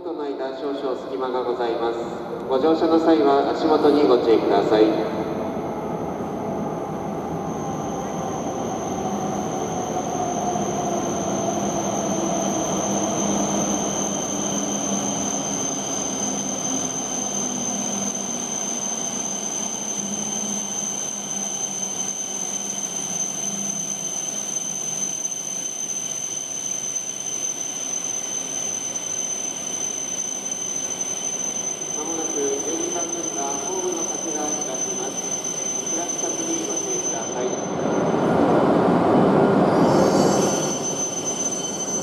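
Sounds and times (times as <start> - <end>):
steady high-pitched tone: 0.9 - 42.0
train motor whine: 6.0 - 38.2.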